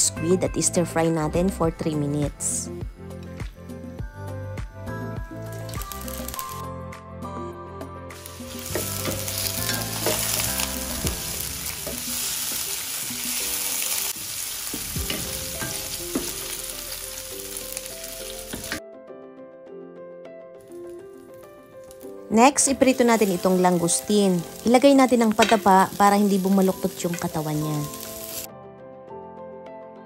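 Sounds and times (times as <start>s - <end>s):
squid sizzling in a frying pan: 5.4s - 6.6s, 8.2s - 18.8s, 20.7s - 28.5s.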